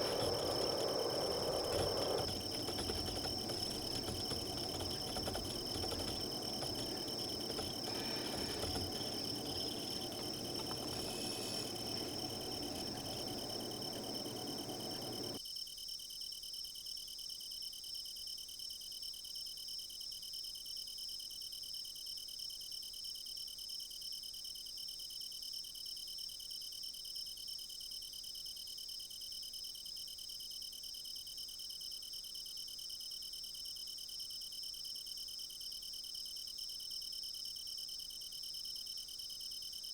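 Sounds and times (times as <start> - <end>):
crickets chirping: 0.0 - 15.4
low rushing noise: 0.0 - 15.4.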